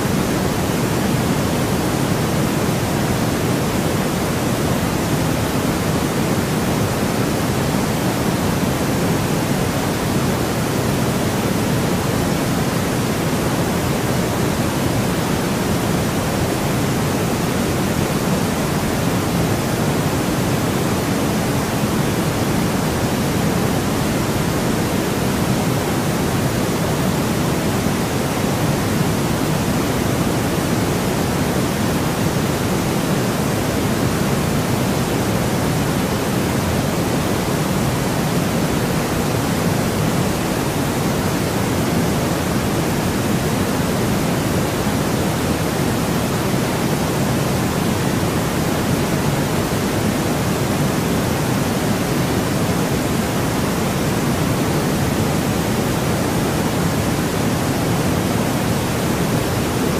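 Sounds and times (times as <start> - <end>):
steady white noise hiss: 0.0 - 59.9.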